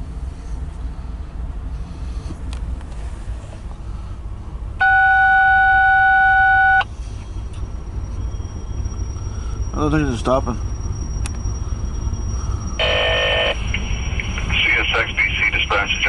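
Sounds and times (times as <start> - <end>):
low steady rumble: 0.0 - 16.0
loud electronic tone: 4.8 - 6.8, 12.8 - 16.0.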